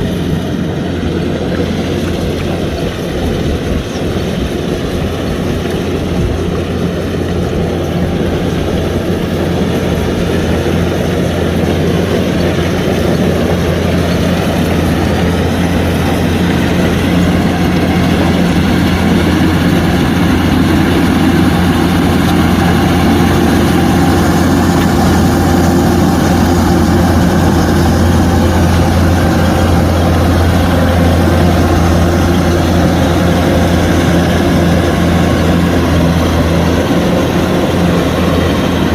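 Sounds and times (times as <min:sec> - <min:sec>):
combine harvester engine humming: 0:00.0 - 0:38.9.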